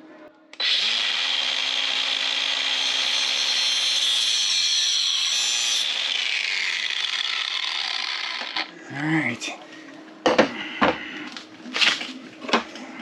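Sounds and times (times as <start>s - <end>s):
power tool motor whining: 0.6s - 8.7s.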